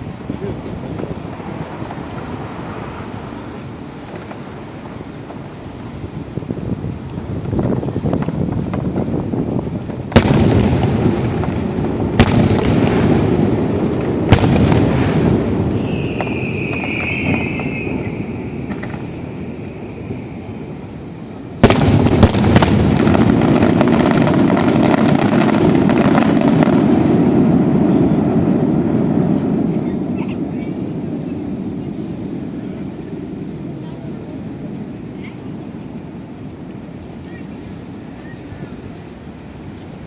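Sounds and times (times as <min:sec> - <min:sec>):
fireworks barrage of bangs and crackles: 0:00.0 - 0:40.0
firework booms with rumble: 0:06.2 - 0:35.2.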